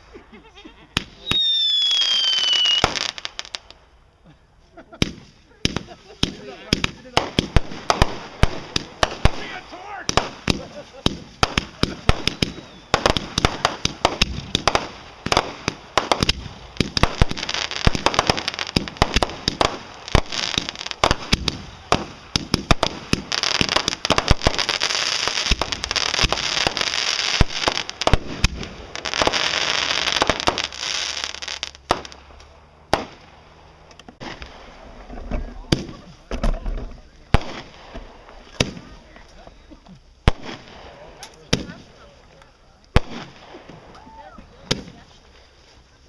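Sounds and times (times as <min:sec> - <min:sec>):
fireworks popping and crackling: 0:00.9 - 0:04.0, 0:04.9 - 0:46.0.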